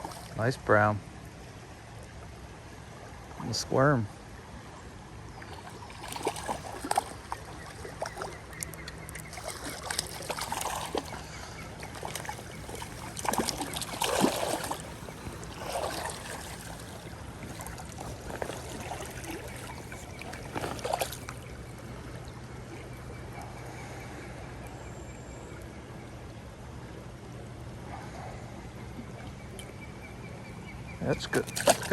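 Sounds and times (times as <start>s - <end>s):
water splashing and sloshing: 0.0s - 24.8s, 31.1s - 31.9s
creek rushing: 5.5s - 21.5s.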